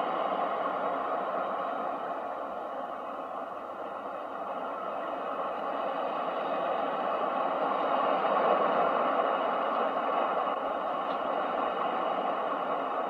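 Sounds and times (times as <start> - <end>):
ocean surf rushing: 0.0 - 13.0.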